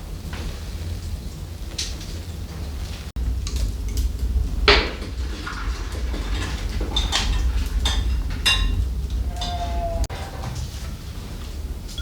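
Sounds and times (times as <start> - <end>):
steady low rumble: 0.0 - 12.0
dishes and utensils clinking: 4.7 - 11.0.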